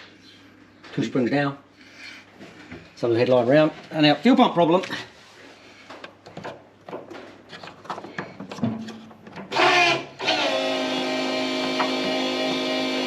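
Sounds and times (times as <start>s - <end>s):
handling knocks and clicks: 5.9s - 9.5s
electric fuel pump humming: 9.5s - 13.0s.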